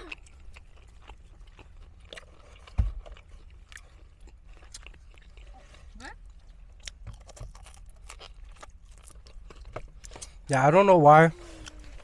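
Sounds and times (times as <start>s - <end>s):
chewing and crunching: 0.0s - 12.0s.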